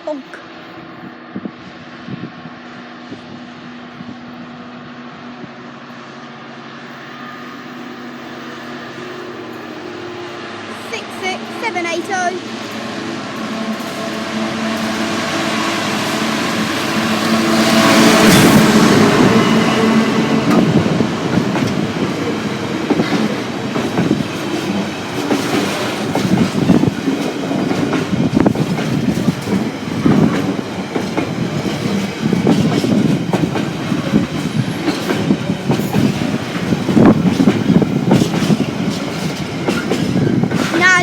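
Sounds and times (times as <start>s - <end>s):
freight train rumbling past: 0.0s - 41.0s
train wheels clattering: 11.4s - 41.0s.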